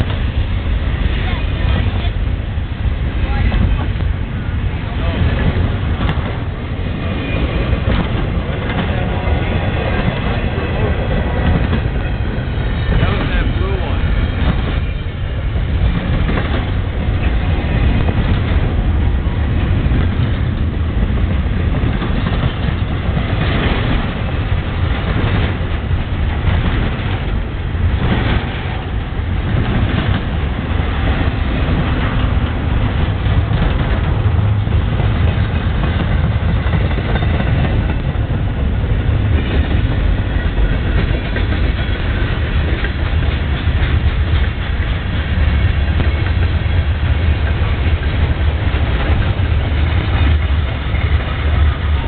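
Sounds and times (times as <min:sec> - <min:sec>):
freight train rolling past: 0:00.0 - 0:52.0.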